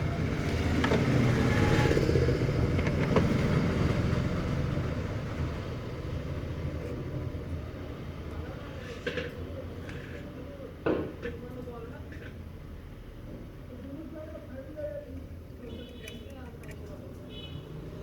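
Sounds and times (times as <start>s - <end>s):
vehicle engine passing: 0.0s - 8.1s.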